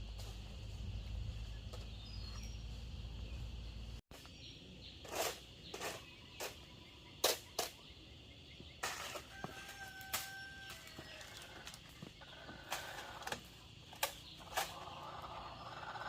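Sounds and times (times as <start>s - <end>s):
steady low hum: 0.0s - 7.0s
bird chirps: 1.0s - 8.9s
knocks and scrapes: 4.1s - 7.9s, 8.8s - 15.6s.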